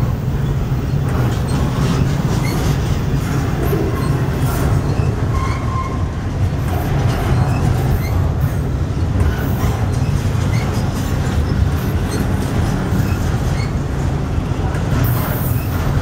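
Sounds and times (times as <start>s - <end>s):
rumble of train wheels on rail: 0.0s - 16.0s
high wheel squeals: 3.6s - 6.2s.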